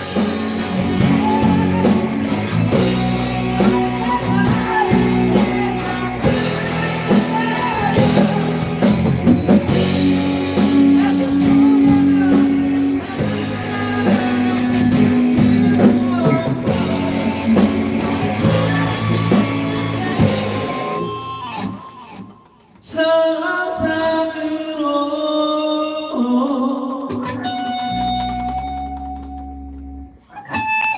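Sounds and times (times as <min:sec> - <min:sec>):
electric guitar sustained notes: 0:00.0 - 0:22.6
rock band playing a ballad: 0:00.0 - 0:22.9, 0:26.6 - 0:30.9.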